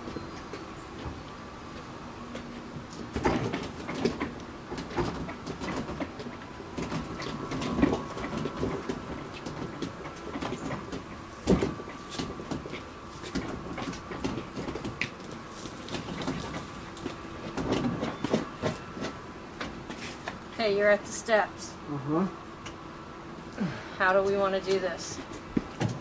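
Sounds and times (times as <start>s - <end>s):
refrigerator rattling and scraping: 2.5s - 20.6s.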